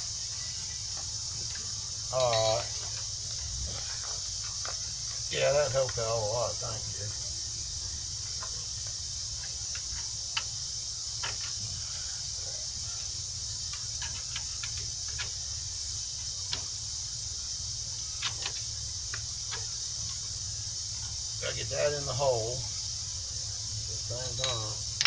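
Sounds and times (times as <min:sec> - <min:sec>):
steady high hiss: 0:00.0 - 0:25.0
metal parts clicking and tapping: 0:01.5 - 0:03.1, 0:24.2 - 0:25.0.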